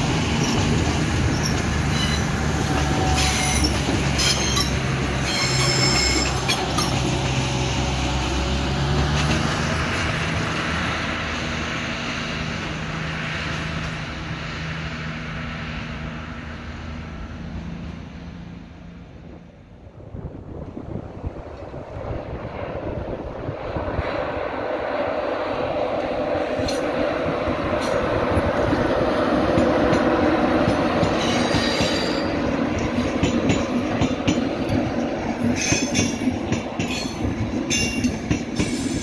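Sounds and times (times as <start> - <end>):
train passing on tracks: 0.0 - 39.0
high-pitched wheel squeal: 1.3 - 6.9, 31.2 - 32.4.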